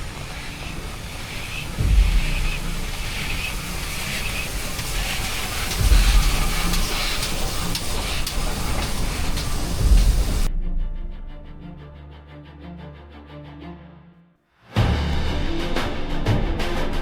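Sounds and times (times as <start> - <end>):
steam locomotive hissing: 0.0 - 10.5
low rumbles: 0.0 - 10.9.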